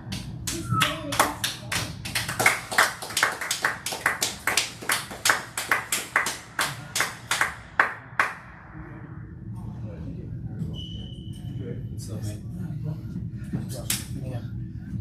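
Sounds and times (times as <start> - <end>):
spectators clapping: 0.0 - 8.4.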